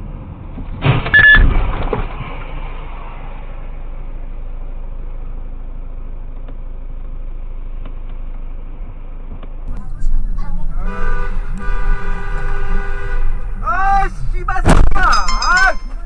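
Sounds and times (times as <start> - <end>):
car road and engine rumble: 0.0 - 16.0
car horn: 10.7 - 13.8.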